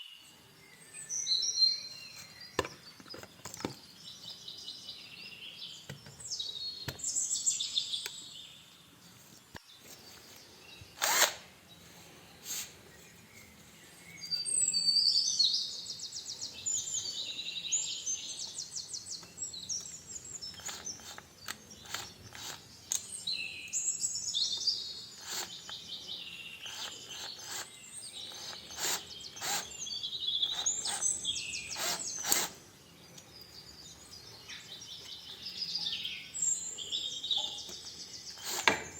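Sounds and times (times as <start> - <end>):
sharp clicks: 11.0 - 11.5, 19.2 - 23.1
birds trilling: 13.0 - 38.9.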